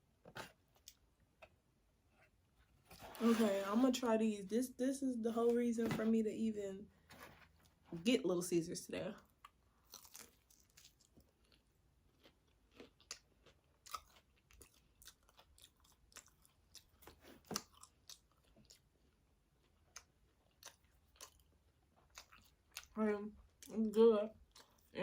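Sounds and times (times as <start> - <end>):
person chewing food: 0.4 - 2.7, 9.3 - 23.7, 24.3 - 25.0.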